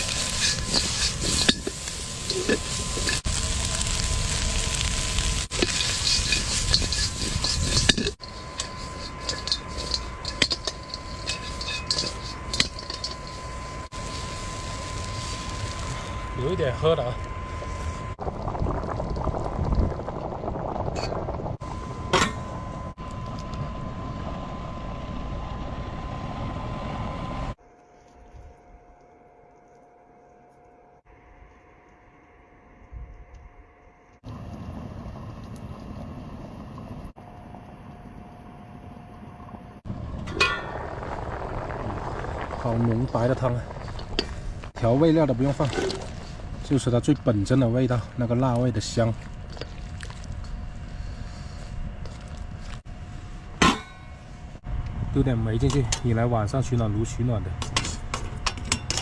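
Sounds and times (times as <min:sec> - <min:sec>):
meat sizzling in hot fat: 0:00.0 - 0:16.2
soup boiling and bubbling: 0:00.0 - 0:16.7, 0:17.3 - 0:21.9, 0:34.2 - 0:53.6
small crackles: 0:00.0 - 0:21.6, 0:39.9 - 0:53.4
faint hum: 0:00.0 - 0:59.0.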